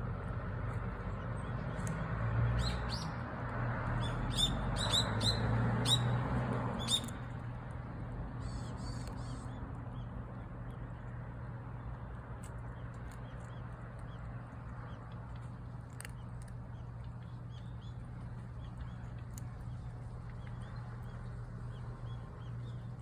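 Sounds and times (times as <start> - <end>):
small birds chirping: 0.7 - 3.3, 3.9 - 6.2, 6.8 - 7.4, 8.3 - 23.0
low background hum: 6.8 - 23.0.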